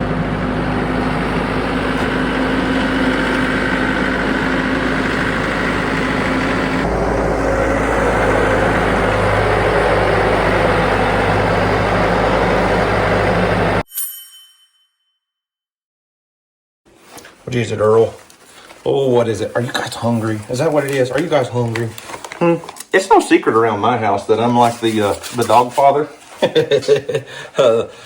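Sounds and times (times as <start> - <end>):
engine running: 0.0 - 13.8.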